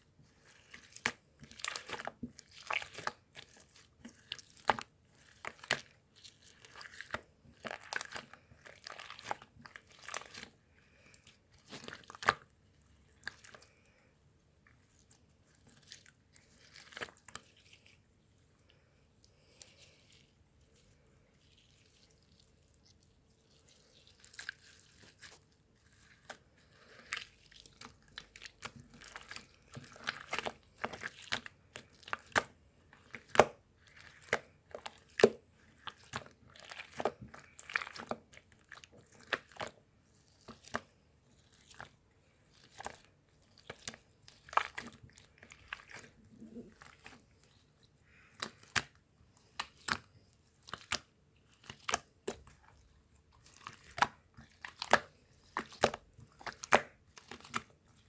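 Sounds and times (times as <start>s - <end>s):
crunching and chewing crisp food: 0.0s - 58.0s.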